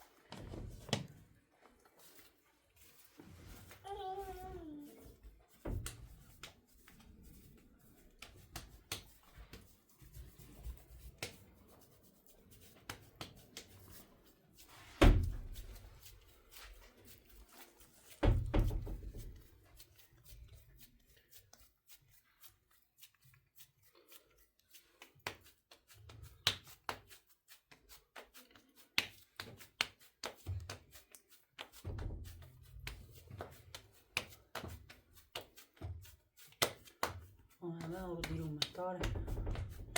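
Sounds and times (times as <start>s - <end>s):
light clicks and knocks: 37.9s - 39.9s.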